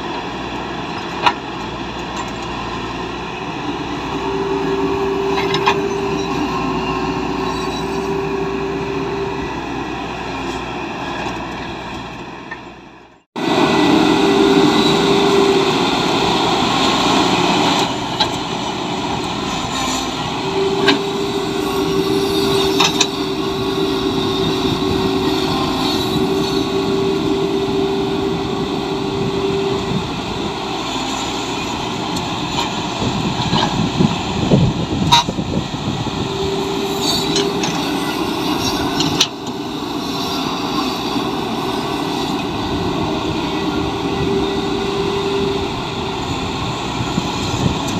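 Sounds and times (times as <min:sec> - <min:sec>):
excavator engine running: 0:00.0 - 0:47.9
hydraulic whine: 0:00.0 - 0:47.9.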